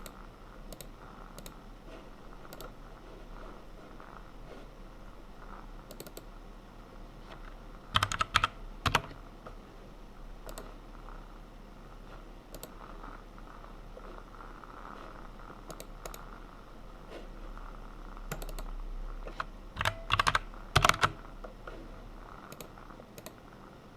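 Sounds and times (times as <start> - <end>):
keyboard typing: 0.0 - 1.6, 2.4 - 2.8, 5.8 - 6.3, 7.3 - 9.2, 10.4 - 10.8, 12.5 - 13.0, 14.9 - 16.3, 18.3 - 21.8, 22.4 - 23.4
faint steady hum: 0.0 - 23.9.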